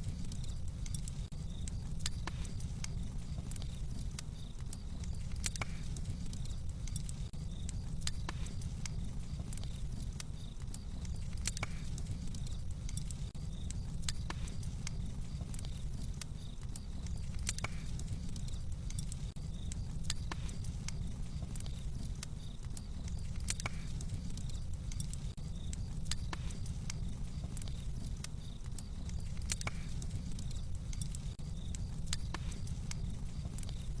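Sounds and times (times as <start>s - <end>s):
fire crackling and popping: 0.0s - 34.0s.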